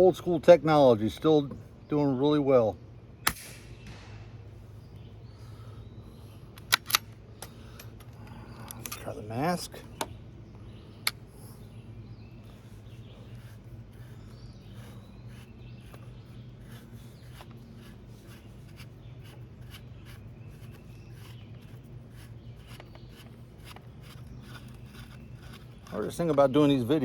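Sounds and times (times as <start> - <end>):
low steady hum: 0.0 - 27.0
sharp click: 6.5 - 7.5
metal scratching and ticks: 16.7 - 27.0.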